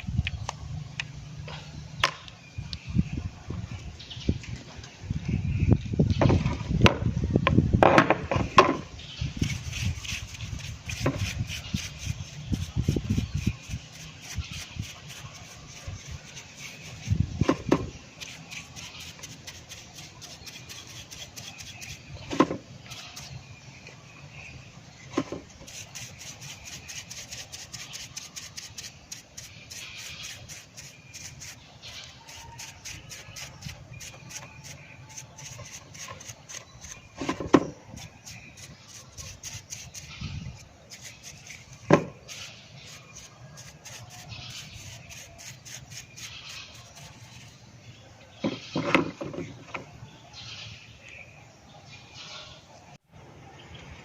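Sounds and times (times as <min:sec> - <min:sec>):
scratchy rubbing of metal parts: 0:09.4 - 0:23.4, 0:25.2 - 0:47.7.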